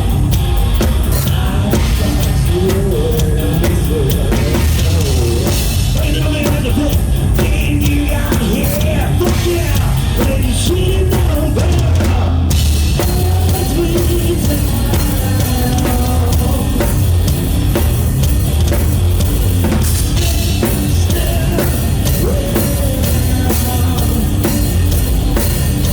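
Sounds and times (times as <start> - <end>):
live rock band playing: 0.0 - 25.9
person singing: 1.1 - 17.0, 20.2 - 24.7.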